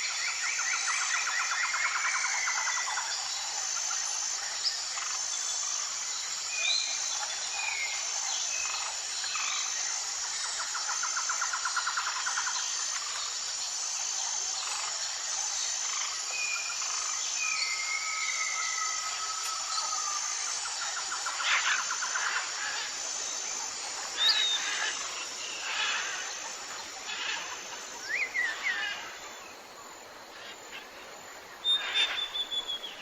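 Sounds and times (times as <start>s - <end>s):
high insect drone: 0.0s - 33.0s
bird long level whistle: 31.6s - 33.0s
birds calling in slurred whistles: 31.6s - 33.0s.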